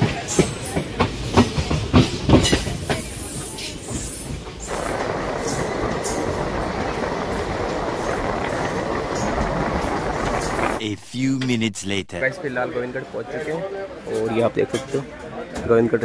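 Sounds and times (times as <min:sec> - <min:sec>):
train wheels clacking: 0:00.0 - 0:10.8
train rushing noise: 0:00.0 - 0:12.6.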